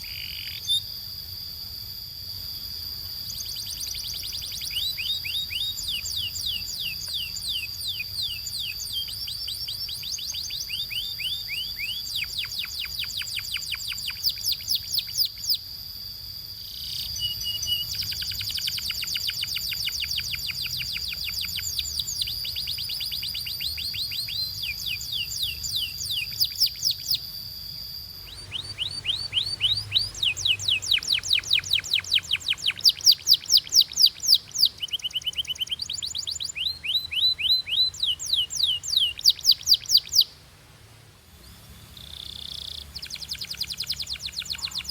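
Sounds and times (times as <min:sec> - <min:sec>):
canary singing trills: 0:00.0 - 0:01.4, 0:03.0 - 0:40.4, 0:41.4 - 0:44.9
steady high tone: 0:25.5 - 0:35.6.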